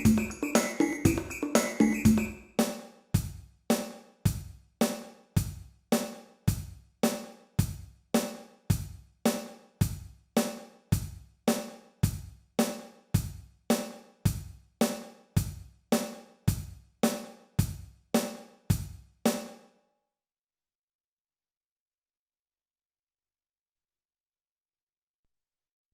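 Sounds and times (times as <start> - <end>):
drum machine percussion pattern: 0.0 - 19.4.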